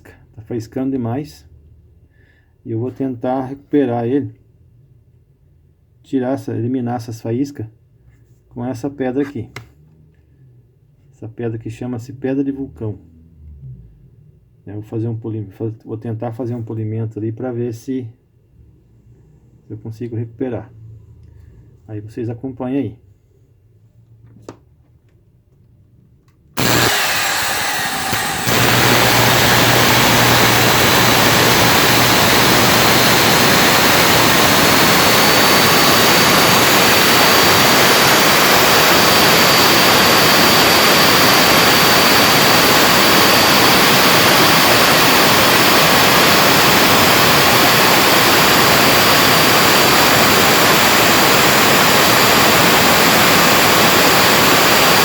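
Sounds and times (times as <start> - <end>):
vacuum cleaner motor running: 26.6 - 55.0.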